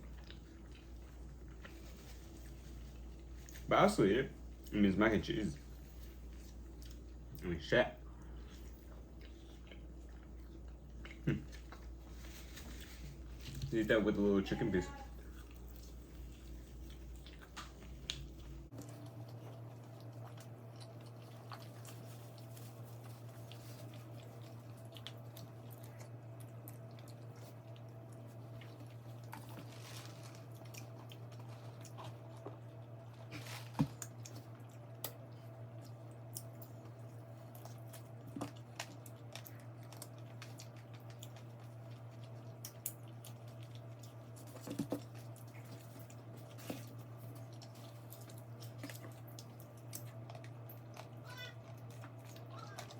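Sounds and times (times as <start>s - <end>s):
faint chewing: 0.0s - 52.9s
steady low hum: 0.0s - 52.9s.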